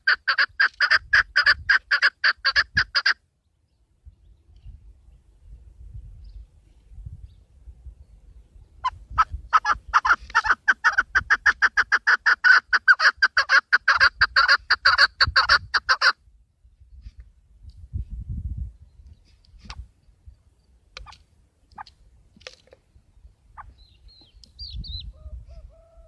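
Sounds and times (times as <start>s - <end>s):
partridge clucking calls: 0.0s - 3.2s, 8.8s - 16.2s, 20.9s - 22.7s, 23.5s - 26.0s.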